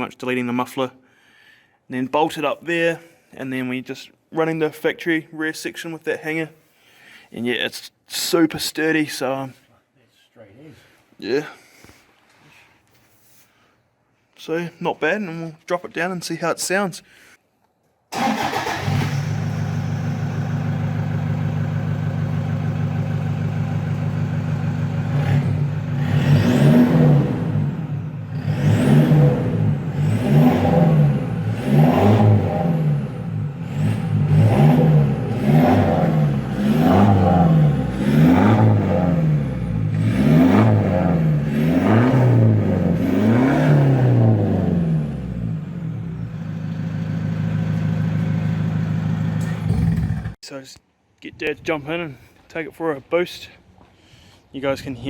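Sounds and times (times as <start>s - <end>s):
diesel engine idling and revving: 18.2s - 50.4s.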